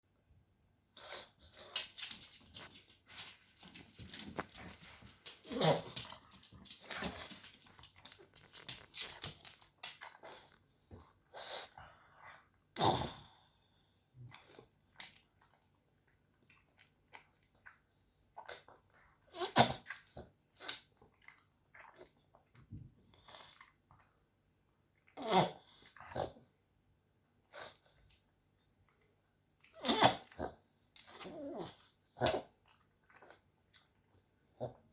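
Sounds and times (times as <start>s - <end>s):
dog sneezing: 29.8s - 30.3s.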